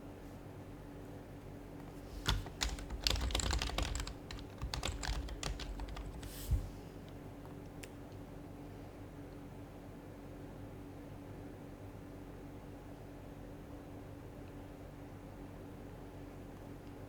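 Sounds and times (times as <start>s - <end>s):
keyboard typing: 2.1s - 6.7s.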